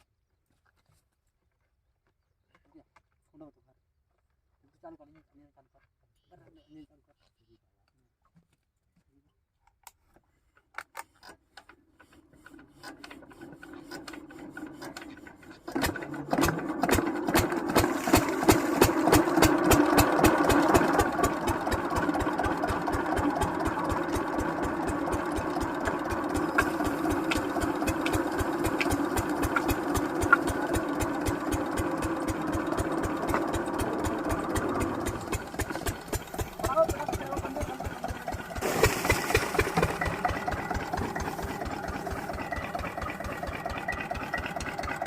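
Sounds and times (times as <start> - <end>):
diesel engine cranking and running: 11.6 - 45.0.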